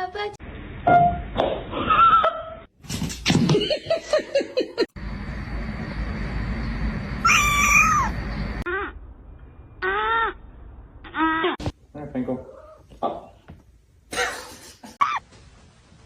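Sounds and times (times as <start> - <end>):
cat meowing: 7.2 - 8.1.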